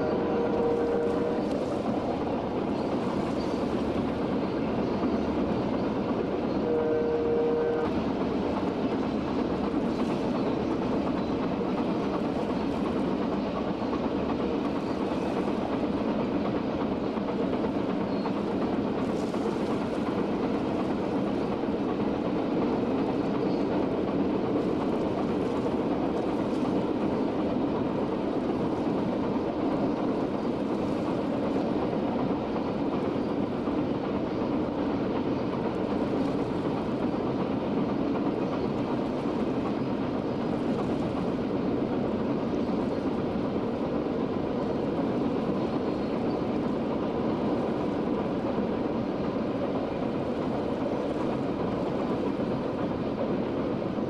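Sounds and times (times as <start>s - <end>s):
locomotive horn blast: 0.0s - 1.5s, 6.6s - 8.0s
freight train rumbling past: 0.0s - 54.0s.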